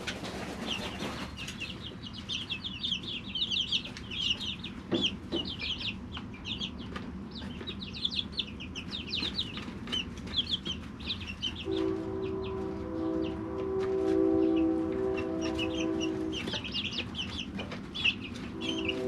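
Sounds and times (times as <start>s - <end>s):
chicks peeping: 0.0s - 19.0s
low multi-tone hum: 0.0s - 19.0s.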